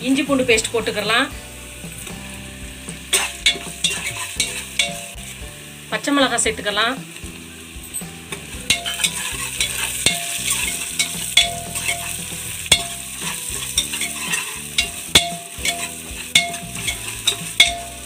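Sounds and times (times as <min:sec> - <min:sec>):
food sizzling in oil: 0:00.0 - 0:18.0
metal spatula scraping a pot: 0:03.1 - 0:05.3, 0:08.7 - 0:18.0.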